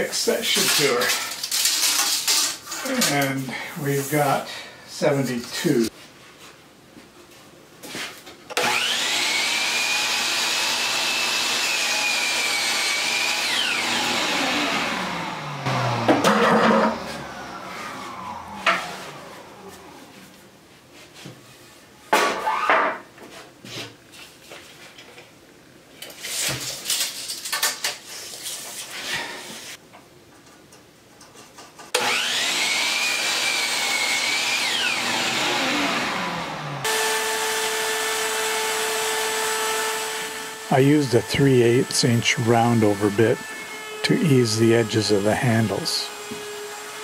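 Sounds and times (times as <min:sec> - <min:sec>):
electric power saw whining: 0:08.5 - 0:20.2, 0:32.0 - 0:47.0.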